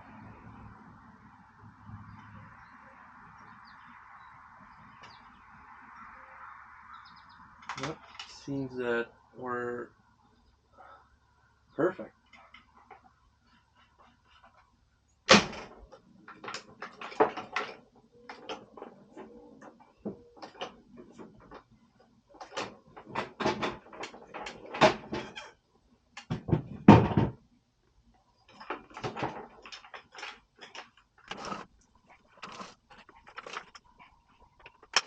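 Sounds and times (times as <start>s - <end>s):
clatter of things being handled: 7.6s - 8.5s, 15.3s - 21.7s, 22.3s - 25.6s, 28.5s - 35.0s.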